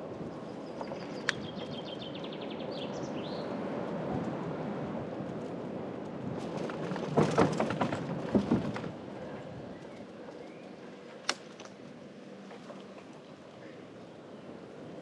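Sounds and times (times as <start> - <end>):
electric bicycle riding rumble: 0.0 - 15.0
rattling knocks and clicks: 6.4 - 9.0.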